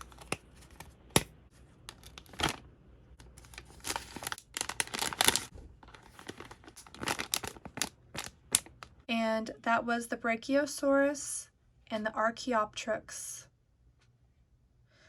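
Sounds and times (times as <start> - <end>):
plastic packaging crinkling: 1.8 - 9.0.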